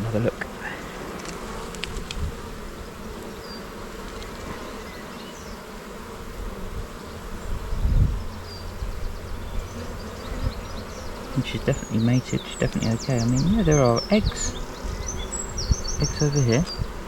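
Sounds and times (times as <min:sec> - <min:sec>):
honey bees humming: 0:00.0 - 0:17.0.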